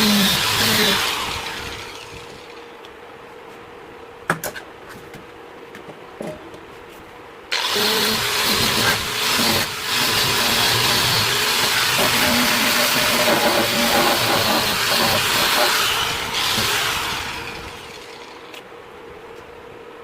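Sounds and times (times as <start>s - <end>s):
workshop machine running with hiss: 7.5s - 20.0s.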